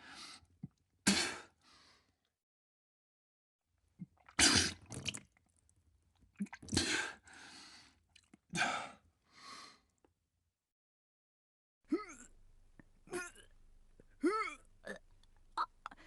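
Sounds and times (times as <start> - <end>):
person retching: 4.1 - 5.2, 11.9 - 12.4, 13.0 - 16.0.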